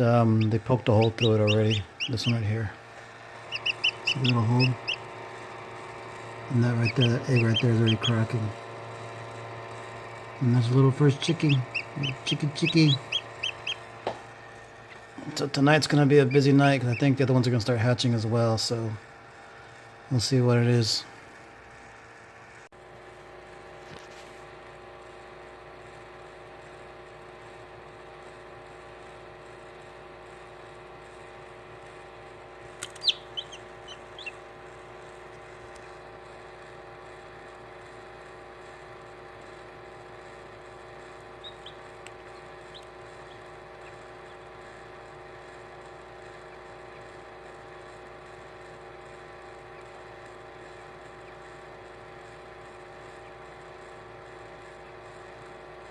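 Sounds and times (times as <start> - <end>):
incubator hum: 0.0 - 55.9
chick peeping: 0.4 - 2.4, 3.5 - 5.0, 6.7 - 8.2, 11.2 - 13.8, 32.8 - 34.4, 41.4 - 41.8.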